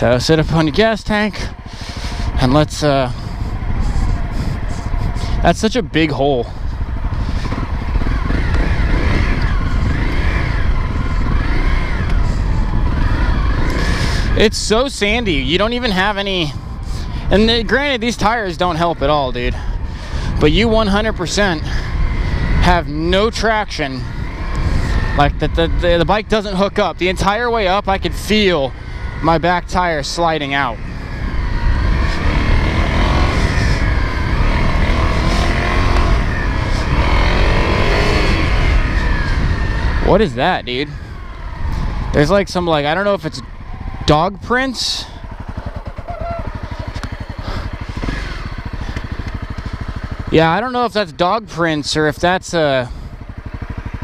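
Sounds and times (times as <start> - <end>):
motorcycle engine revving: 0.0 - 54.0
wind rumble on microphone: 1.3 - 18.5.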